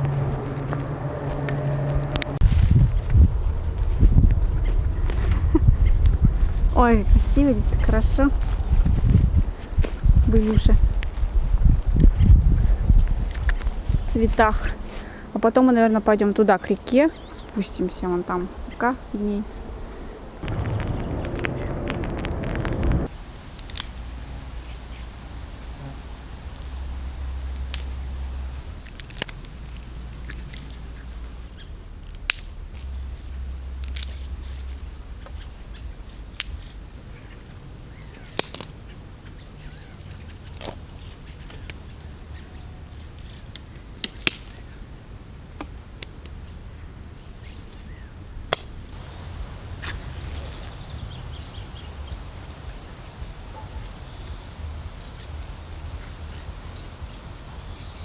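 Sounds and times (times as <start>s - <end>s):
wind rumble on microphone: 0.0s - 15.4s, 16.8s - 38.0s
dry twigs snapping: 20.4s - 24.0s, 26.4s - 31.3s, 31.9s - 35.4s, 36.3s - 36.7s, 38.0s - 38.8s, 40.5s - 42.2s, 43.1s - 44.8s, 45.6s - 46.4s, 48.4s - 48.9s, 53.8s - 57.2s.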